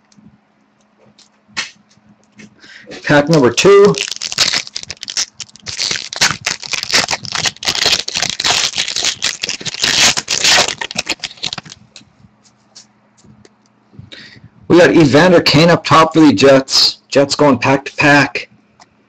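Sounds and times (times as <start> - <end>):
card wrapper crinkling: 3.1 - 12.0.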